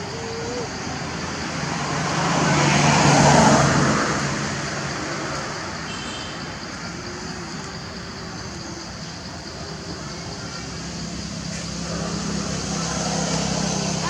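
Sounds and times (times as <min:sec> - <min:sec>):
motor vehicle passing by: 0:00.0 - 0:08.2, 0:10.3 - 0:14.0.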